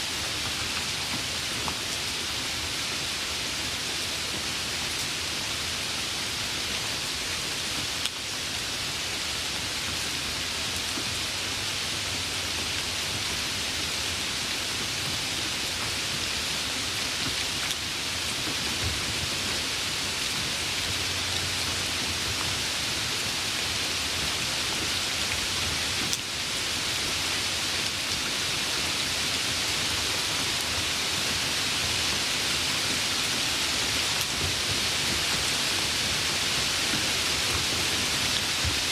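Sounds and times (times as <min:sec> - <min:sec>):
dense rainfall hissing: 0:00.0 - 0:38.9.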